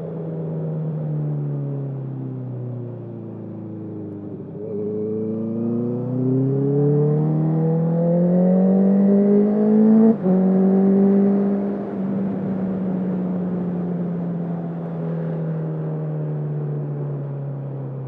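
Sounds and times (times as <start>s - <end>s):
motorcycle engine accelerating: 4.2s - 15.4s.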